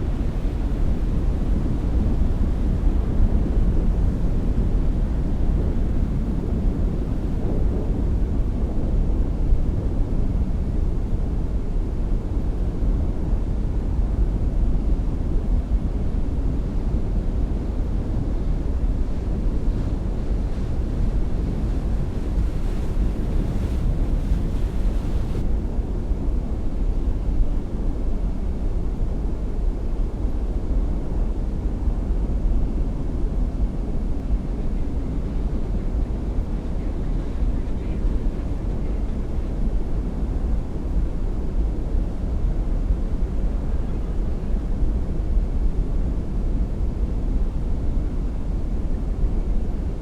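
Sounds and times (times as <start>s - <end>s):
faint high hiss: 0.0s - 7.4s
water and boat noise: 0.0s - 8.0s, 19.4s - 25.5s
wind rumbling on microphone: 0.0s - 50.0s.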